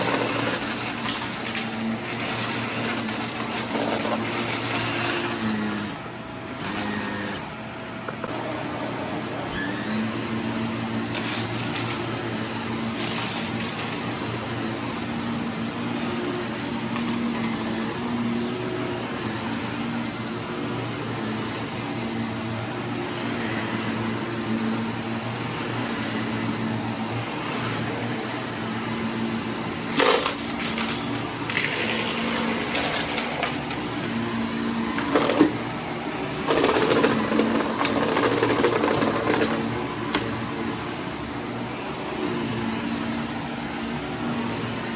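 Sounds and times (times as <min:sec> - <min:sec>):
vacuum cleaner motor hum: 0:00.0 - 0:44.9.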